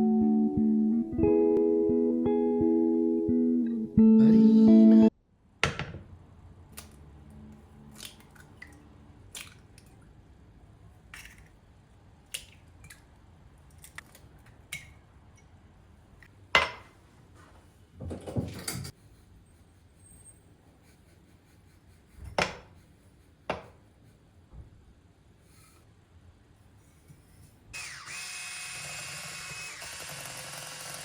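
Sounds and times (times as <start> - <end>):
guitar music: 0.0 - 5.1.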